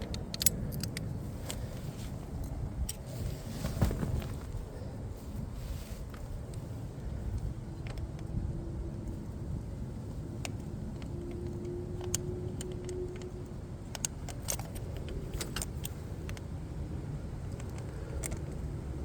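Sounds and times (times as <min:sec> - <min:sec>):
metallic clicks and jingles: 0:00.0 - 0:03.1, 0:10.4 - 0:16.6
steady low rumble: 0:00.0 - 0:19.0.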